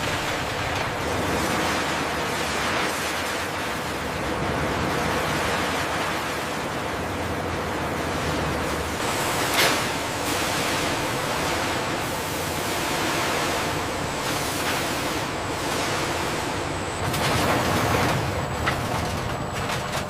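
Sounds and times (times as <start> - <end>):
factory background rushing noise: 0.0 - 20.0.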